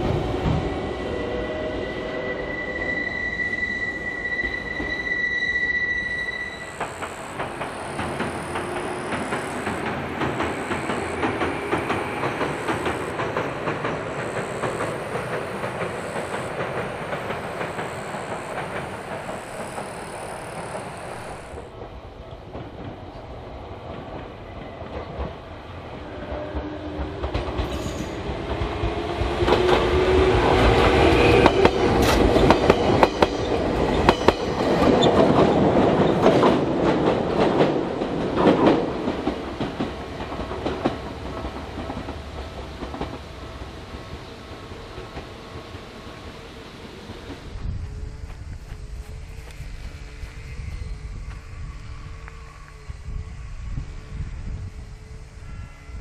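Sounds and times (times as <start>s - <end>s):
electric train running: 0.0s - 56.0s
train passing with rising whine: 0.0s - 56.0s
wheels clicking over rail joints: 6.7s - 21.9s.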